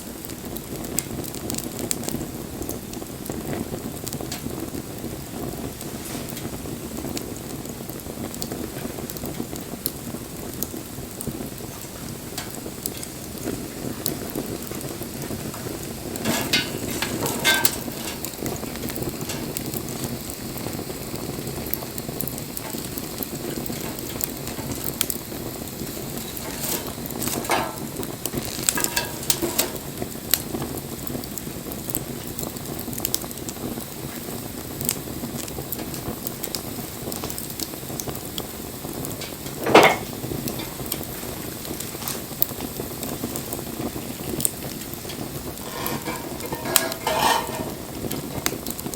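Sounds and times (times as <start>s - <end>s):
bonfire crackling: 0.0s - 48.9s.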